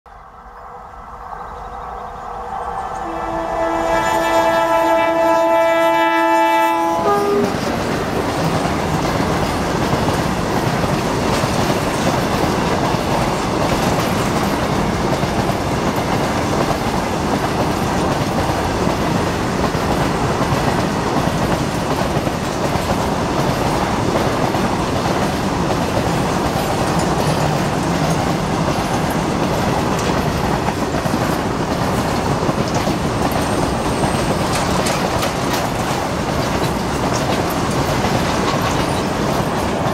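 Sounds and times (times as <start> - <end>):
locomotive horn: 2.4 - 7.8
train wheels clattering on rails: 5.5 - 39.9.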